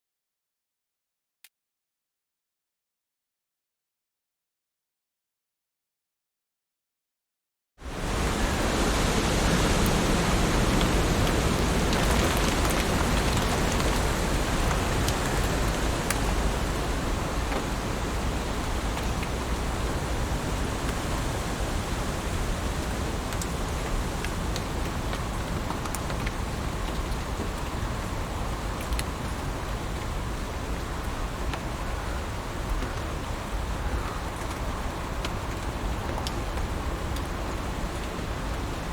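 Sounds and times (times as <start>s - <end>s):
heavy rain falling: 7.8s - 38.9s.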